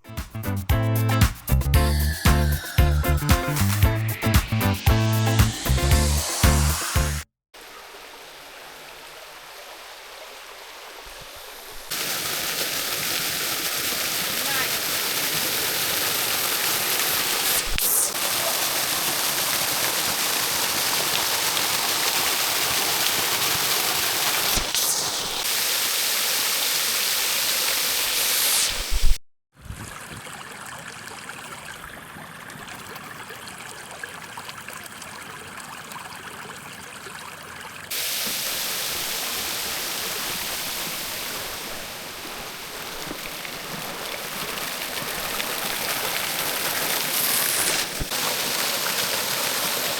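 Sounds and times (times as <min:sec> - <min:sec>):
waterfall rushing: 0:11.4 - 0:29.1, 0:37.9 - 0:49.9.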